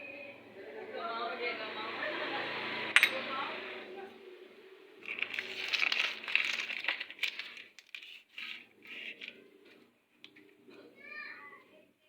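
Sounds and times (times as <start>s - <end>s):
rustling and crinkling handling noise: 5.0s - 10.6s.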